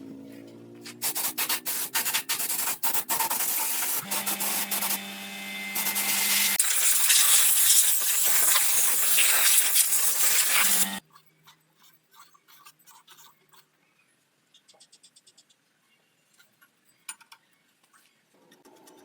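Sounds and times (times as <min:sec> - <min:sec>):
continuous sanding rasp: 0:00.9 - 0:07.2, 0:08.4 - 0:11.0
hand sanding strokes: 0:00.9 - 0:11.0
sander motor hum: 0:04.0 - 0:06.6, 0:10.4 - 0:11.0.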